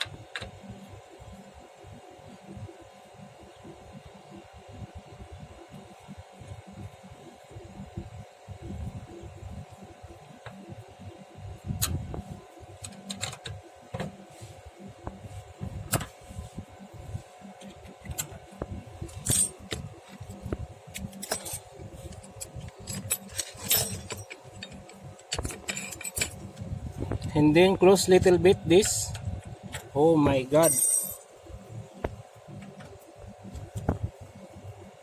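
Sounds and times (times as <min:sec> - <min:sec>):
faint steady hum: 0:00.0 - 0:35.0
metallic clicks and jingling tools: 0:21.2 - 0:25.0, 0:25.6 - 0:26.4, 0:30.6 - 0:31.2.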